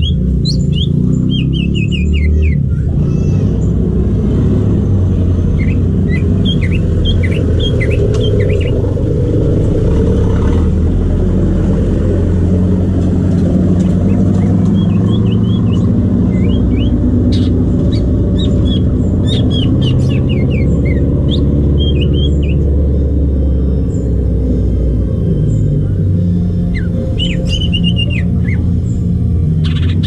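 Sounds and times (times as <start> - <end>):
bird chirping: 0.0 - 3.9, 4.7 - 30.0
low rumble: 2.6 - 21.6.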